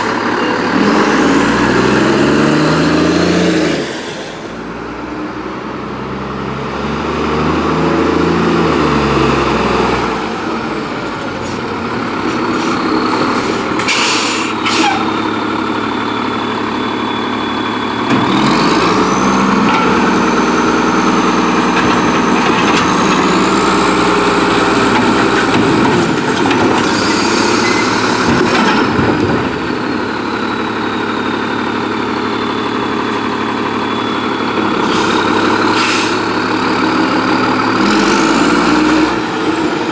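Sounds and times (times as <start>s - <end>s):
garbage truck engine running: 0.0s - 39.9s
high hydraulic whine: 10.0s - 31.2s, 32.0s - 39.9s
short air hisses: 34.8s - 36.3s.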